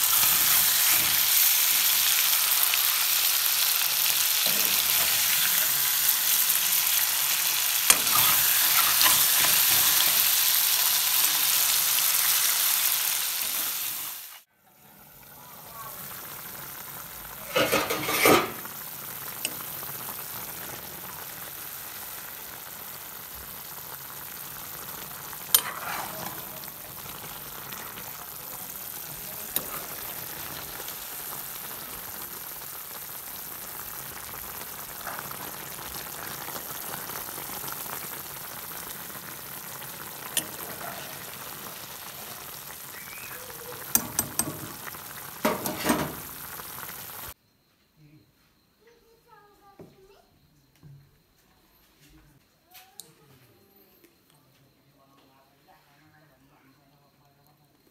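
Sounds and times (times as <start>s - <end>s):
food sizzling in a pan: 0.0s - 47.4s
metal spatula scraping a pan: 4.4s - 5.7s, 7.9s - 10.3s, 17.5s - 18.6s, 25.5s - 26.7s, 45.4s - 46.2s.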